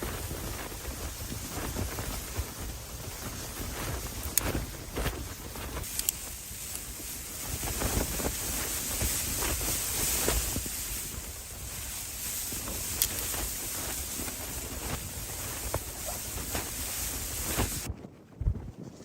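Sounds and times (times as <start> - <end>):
strong wind buffeting microphone: 0.0 - 19.0
faint clicks: 5.7 - 6.9, 12.3 - 14.8.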